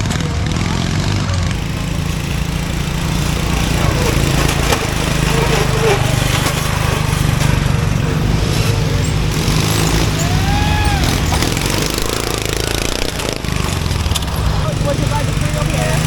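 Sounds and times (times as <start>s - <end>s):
lawn mower engine running: 0.0s - 16.0s
pitched call rising and falling: 9.8s - 13.3s.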